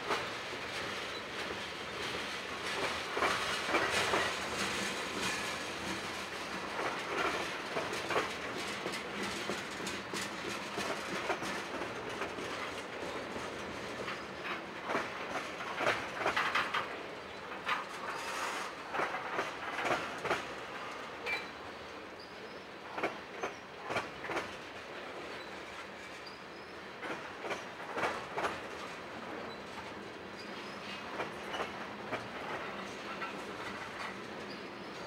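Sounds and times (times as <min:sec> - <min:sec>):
wheels clacking over rail joints: 0:00.0 - 0:21.6, 0:22.9 - 0:35.0
steel wheels rolling on rail: 0:00.0 - 0:35.0.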